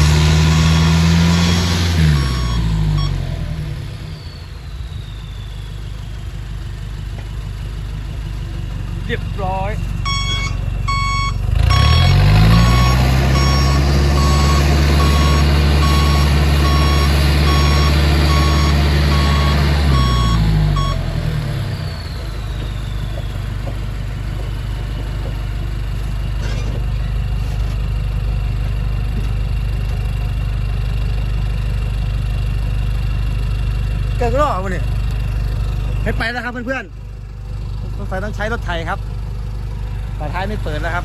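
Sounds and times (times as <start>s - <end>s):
reversing beeper: 0.0s - 25.8s, 40.0s - 41.0s
diesel truck engine revving: 0.0s - 41.0s
faint falling whistle: 0.5s - 6.8s, 10.1s - 24.0s.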